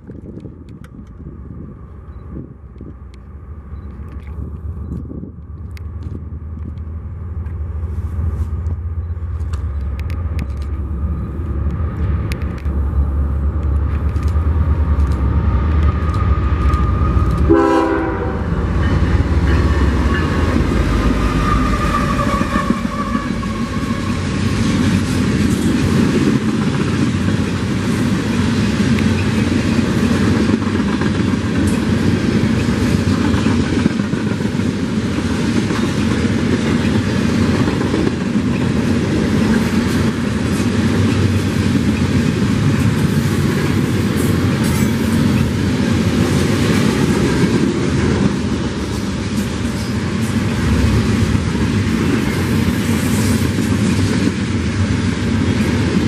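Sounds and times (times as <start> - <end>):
diesel locomotive engines rumbling: 0.0 - 56.0
train wheels clattering on rails: 8.6 - 56.0.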